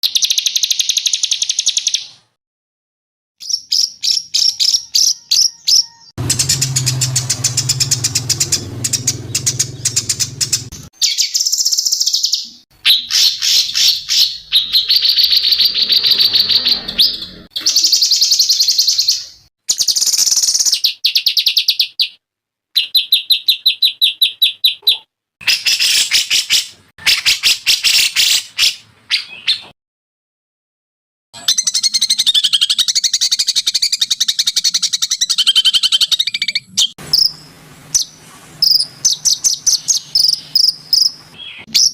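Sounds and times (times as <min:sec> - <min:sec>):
songbirds trilling and chirping: 0:03.4 - 0:22.2, 0:31.4 - 0:41.9.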